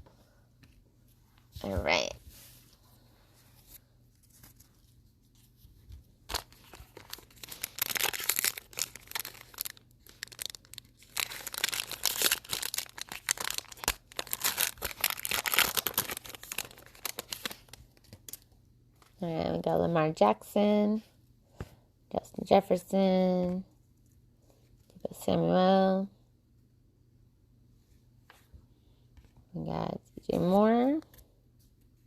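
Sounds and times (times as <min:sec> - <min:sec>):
wrapper tearing and crinkling: 0:06.3 - 0:18.4.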